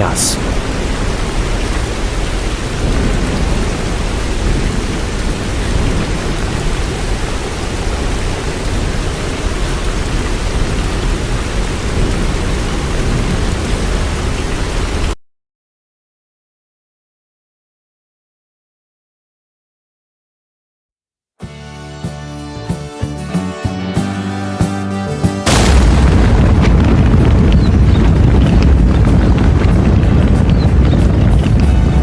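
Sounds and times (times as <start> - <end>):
rushing water with deep rumble: 0.0 - 15.2, 25.4 - 32.0.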